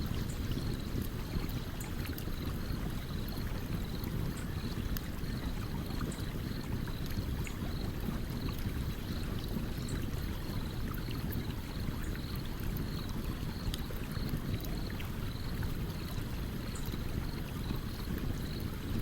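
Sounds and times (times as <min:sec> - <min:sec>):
stream flowing: 0:00.0 - 0:19.0.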